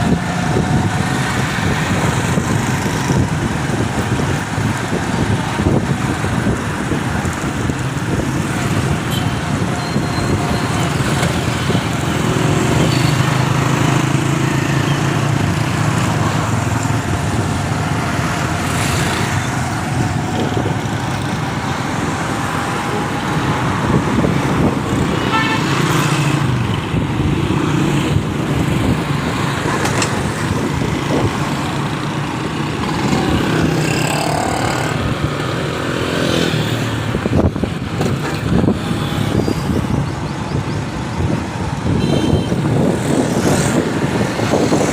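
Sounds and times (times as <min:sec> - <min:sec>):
motorcycle and car engines: 0:00.0 - 0:44.9
vehicle horns tooting: 0:25.2 - 0:26.1, 0:41.9 - 0:42.7.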